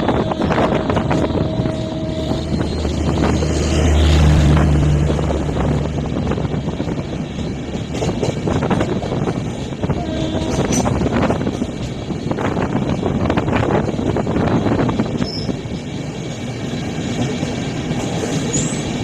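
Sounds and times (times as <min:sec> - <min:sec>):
train rumbling past: 0:00.0 - 0:19.0
wind buffeting microphone: 0:00.0 - 0:19.0.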